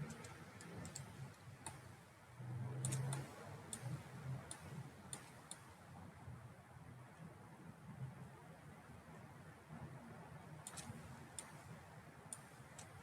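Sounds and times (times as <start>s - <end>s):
computer mouse clicking: 0.0s - 1.9s, 2.7s - 5.8s, 10.6s - 13.0s
faint low hum: 0.0s - 13.0s.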